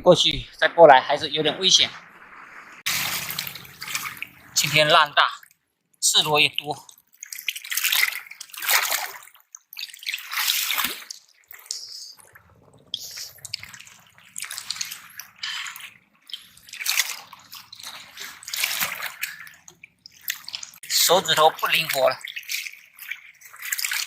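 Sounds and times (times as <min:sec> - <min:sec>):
seawater splashing among rocks: 0:01.6 - 0:05.2, 0:07.1 - 0:24.0.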